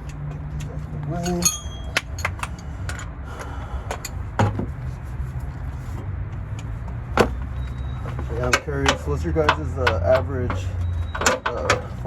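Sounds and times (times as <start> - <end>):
metal tools knocking and clinking: 0.0 - 3.1, 3.9 - 4.7, 8.1 - 12.0.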